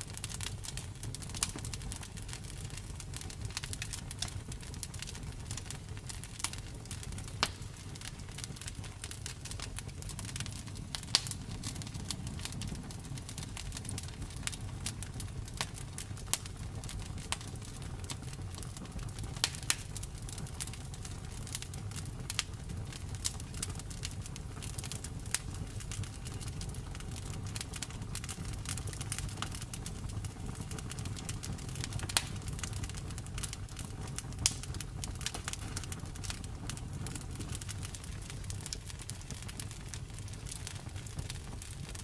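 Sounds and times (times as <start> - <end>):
low rumble of flames: 0.0 - 42.0
wood fire crackling: 0.0 - 42.0.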